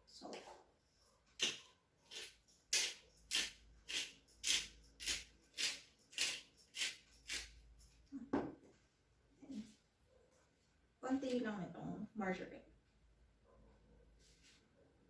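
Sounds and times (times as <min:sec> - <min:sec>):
salt shaker rattling: 0:01.4 - 0:08.0.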